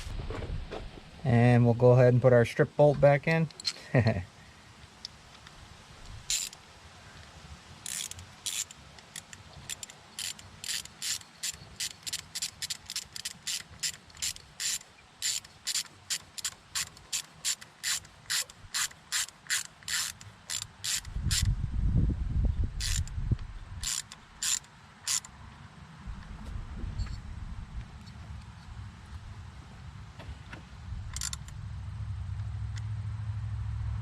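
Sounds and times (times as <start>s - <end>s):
ratchet wrench clicking: 6.3s - 6.6s, 7.8s - 21.5s, 22.8s - 23.2s, 23.8s - 25.3s, 31.1s - 31.6s.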